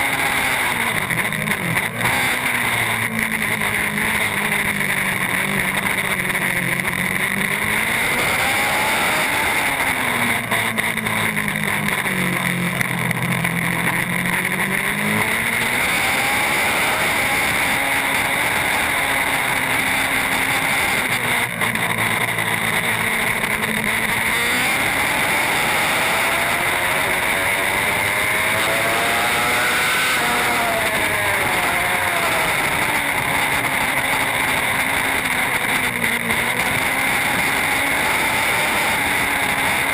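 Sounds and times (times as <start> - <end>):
superbike engine revving: 0.0 - 39.9.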